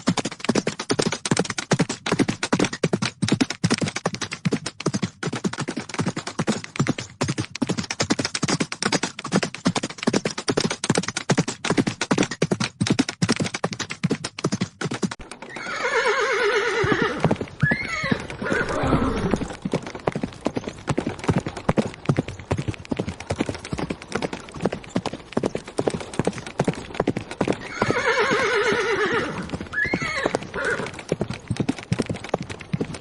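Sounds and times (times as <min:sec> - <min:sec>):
horses galloping hoofbeats: 0:00.0 - 0:33.0
horse whinnying: 0:15.4 - 0:19.6, 0:27.6 - 0:31.0.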